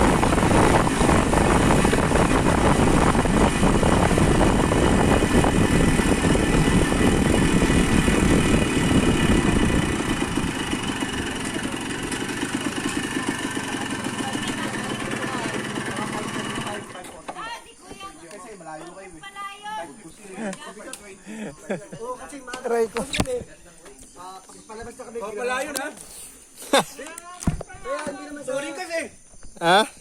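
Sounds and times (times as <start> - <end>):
motorcycle engine rumbling: 0.0 - 17.3.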